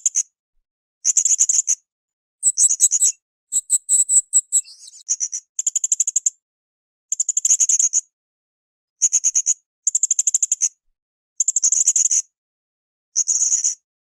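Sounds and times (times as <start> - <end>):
parrot high-pitched chattering: 2.4 - 5.0.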